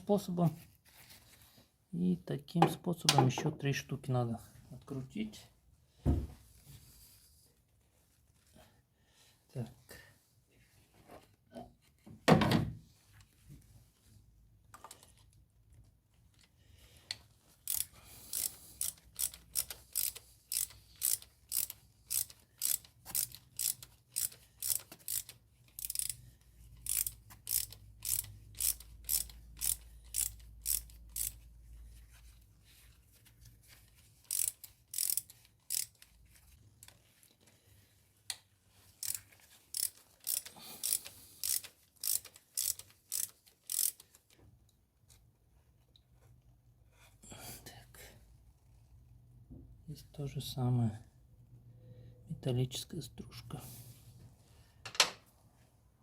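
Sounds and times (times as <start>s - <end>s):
ratchet wrench clicking: 17.6s - 26.2s, 26.8s - 31.4s, 34.2s - 36.1s, 39.0s - 44.3s.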